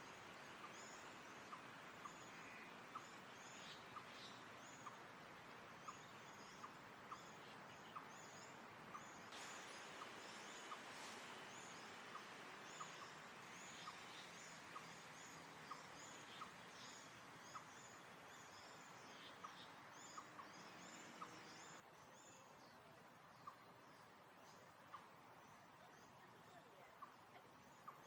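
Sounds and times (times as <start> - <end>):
small birds chirping: 0.0 - 28.0
steady hiss: 8.4 - 21.8.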